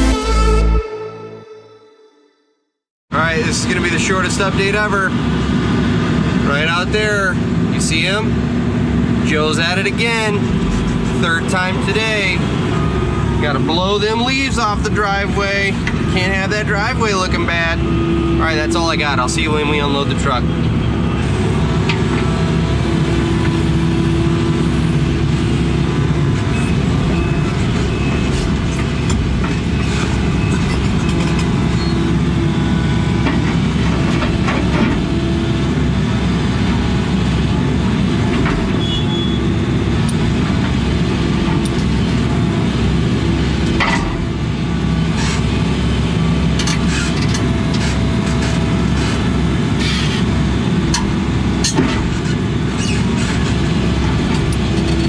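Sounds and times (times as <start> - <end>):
heavy diesel engine running: 3.1 - 55.0
rattles and clanks: 33.2 - 35.3, 38.0 - 38.9, 43.6 - 44.4, 46.5 - 55.0.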